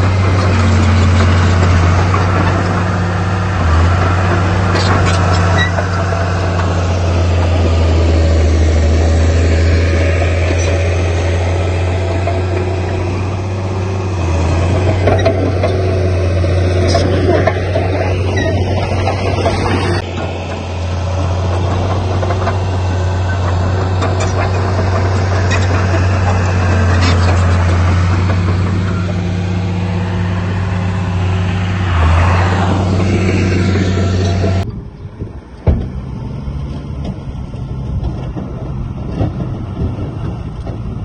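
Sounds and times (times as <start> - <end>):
heavy diesel machinery droning: 0.0 - 41.0.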